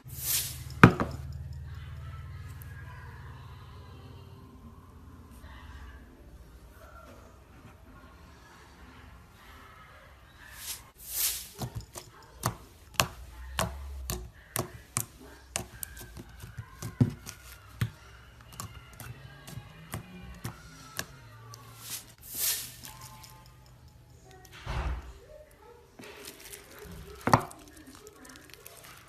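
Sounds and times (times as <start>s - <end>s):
slime squelching: 10.5s - 23.2s, 26.0s - 29.0s.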